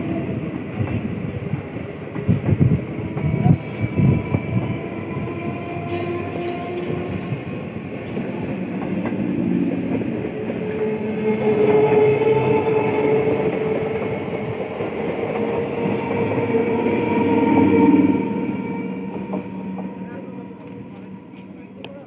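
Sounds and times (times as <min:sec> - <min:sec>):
train wheels rumbling and knocking: 0:00.0 - 0:22.0.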